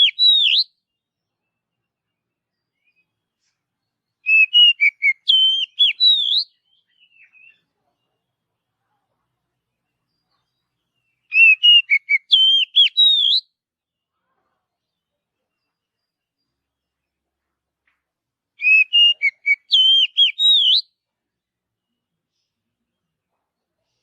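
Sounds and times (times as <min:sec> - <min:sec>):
bird singing whistled notes: 0:00.0 - 0:07.7, 0:10.0 - 0:13.6, 0:18.6 - 0:21.0.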